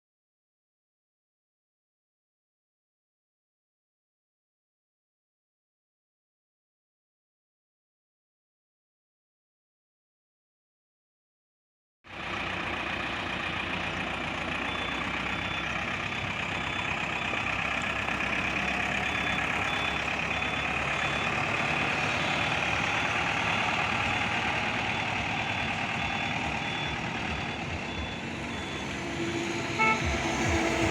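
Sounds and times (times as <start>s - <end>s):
truck engine running: 12.1s - 30.9s
reverse warning beeps: 12.5s - 30.9s.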